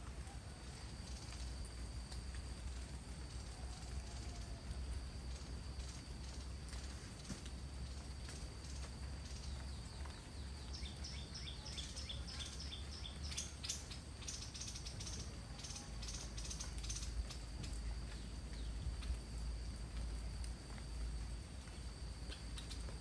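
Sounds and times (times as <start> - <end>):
background hiss: 0.0 - 23.0
bird chirping: 9.3 - 17.4.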